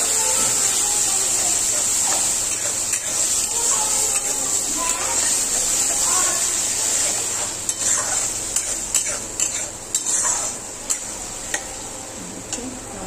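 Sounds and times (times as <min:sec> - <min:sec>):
food sizzling in a pan: 0:00.0 - 0:13.0
spatula scraping a pan: 0:01.7 - 0:11.7.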